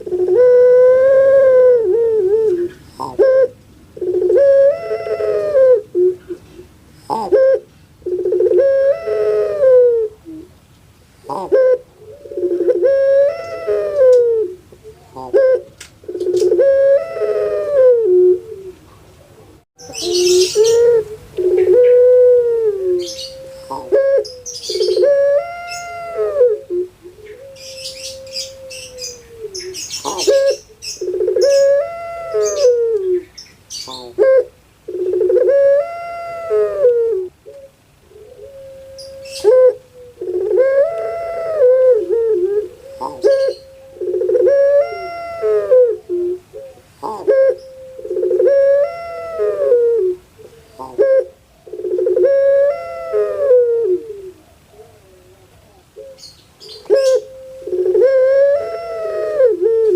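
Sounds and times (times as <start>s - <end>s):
dove cooing: 0.0s - 10.6s, 11.2s - 59.9s
small birds chirping: 18.7s - 22.0s, 23.0s - 26.1s, 27.0s - 34.2s, 42.6s - 45.1s, 54.4s - 58.0s.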